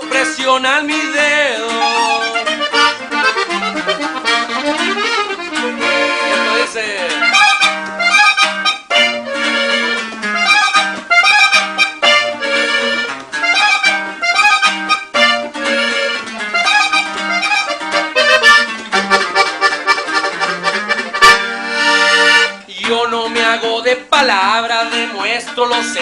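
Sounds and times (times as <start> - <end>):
accordion melodic runs: 0.0 - 22.7
bass line: 14.2 - 22.5.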